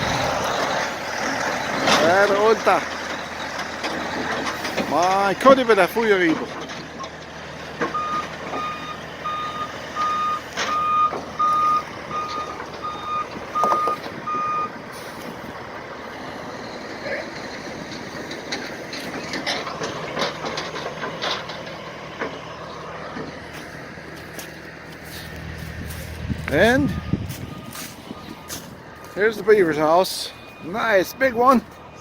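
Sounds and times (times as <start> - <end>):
diesel engine running: 0.0 - 32.0
back-up alarm beeping: 7.9 - 14.8, 26.5 - 32.0.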